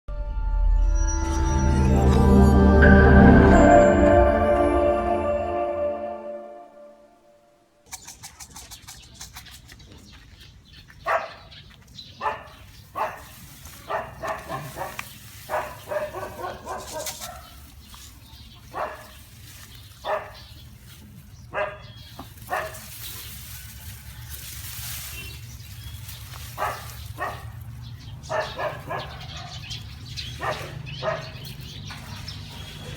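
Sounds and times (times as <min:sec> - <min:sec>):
dog barking: 0:11.0 - 0:11.5, 0:12.2 - 0:17.6, 0:18.7 - 0:19.2, 0:20.0 - 0:20.5, 0:21.5 - 0:22.9, 0:26.6 - 0:27.6, 0:28.2 - 0:31.5.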